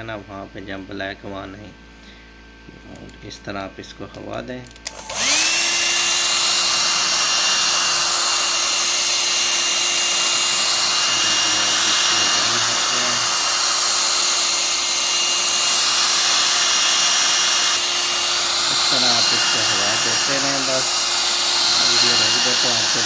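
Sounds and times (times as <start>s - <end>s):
hot air blower whining: 4.8s - 23.0s.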